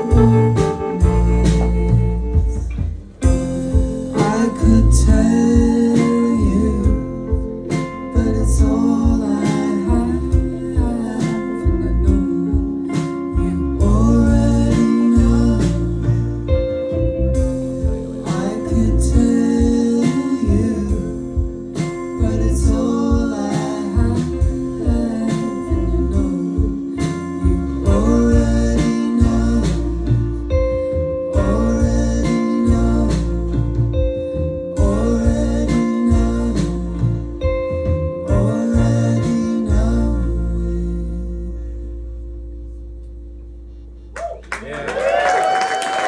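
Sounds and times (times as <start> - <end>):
person singing: 0.0 - 2.7, 3.7 - 41.9
rock band playing live: 0.0 - 40.1.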